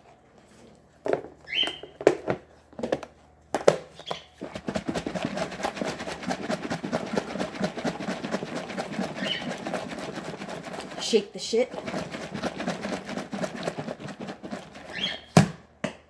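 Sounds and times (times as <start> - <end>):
container shaken rattling: 4.4 - 15.3.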